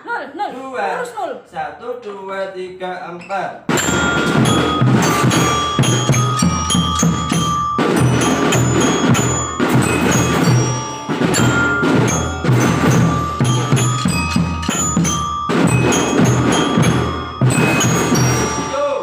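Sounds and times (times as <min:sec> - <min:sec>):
bass drums: 0:03.7 - 0:18.8
glockenspiel melody: 0:03.7 - 0:19.0
snare drums: 0:03.7 - 0:19.0.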